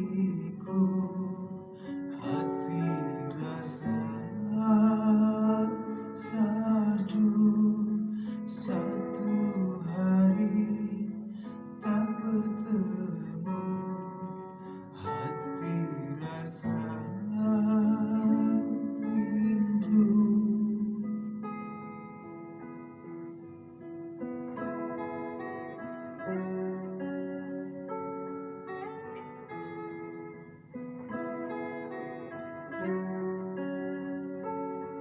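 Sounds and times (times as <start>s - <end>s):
person singing: 0.0s - 21.8s
acoustic guitar strummed chords: 0.0s - 35.0s.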